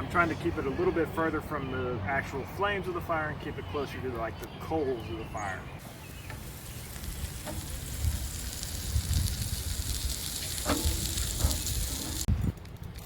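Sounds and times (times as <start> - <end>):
campfire sizzling hiss: 5.8 - 12.3
fire crackles: 5.8 - 13.0.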